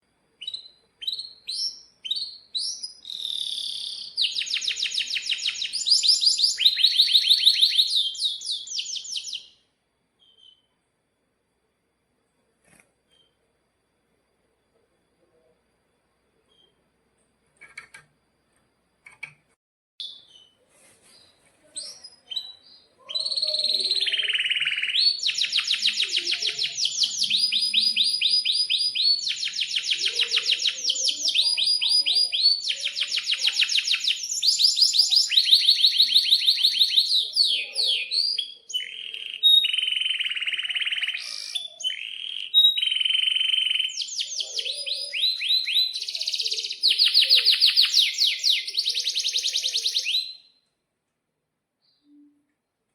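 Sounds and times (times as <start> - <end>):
canary singing trills: 0.4 - 9.6, 21.2 - 50.6.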